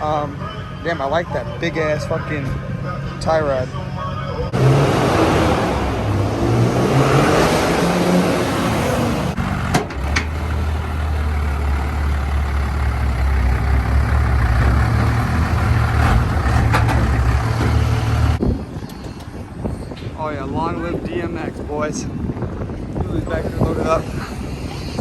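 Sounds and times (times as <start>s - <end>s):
loud rushing sound: 4.5s - 9.5s
truck engine running: 8.3s - 18.4s.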